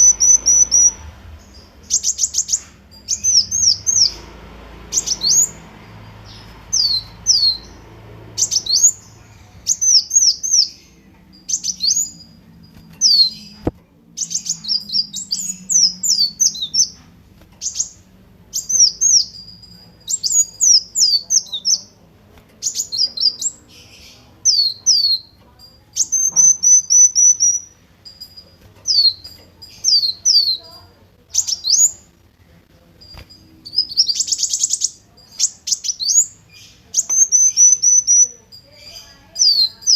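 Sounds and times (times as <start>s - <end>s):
sunbird singing high sharp notes: 33.6s - 39.9s.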